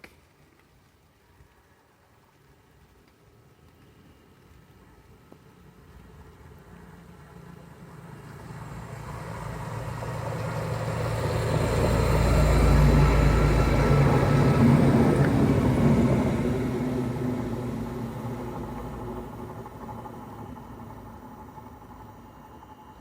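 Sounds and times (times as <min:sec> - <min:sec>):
train wheels on rails: 0:02.3 - 0:23.0
locomotive engine passing: 0:05.4 - 0:23.0.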